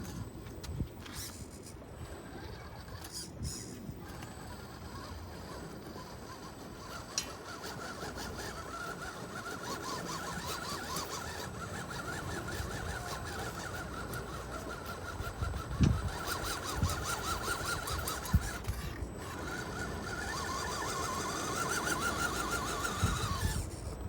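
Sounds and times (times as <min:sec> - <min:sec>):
electric motor and gear whine: 0:00.0 - 0:24.0
small clicks: 0:02.8 - 0:09.0.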